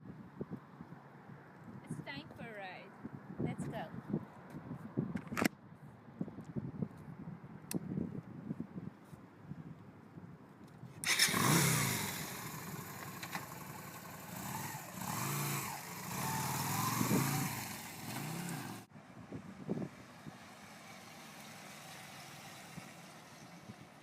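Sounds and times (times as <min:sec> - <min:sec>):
motorcycle engine revving: 0:11.0 - 0:18.9.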